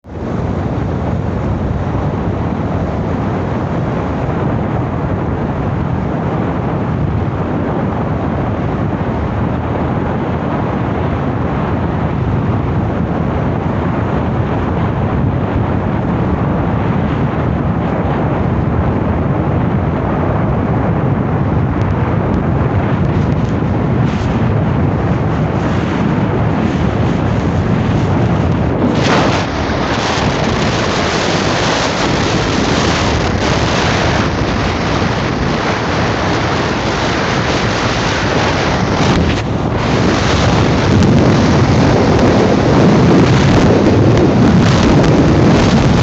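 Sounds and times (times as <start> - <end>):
motorcycle engine and road noise: 0.0 - 46.0
wind buffeting microphone: 0.0 - 46.0.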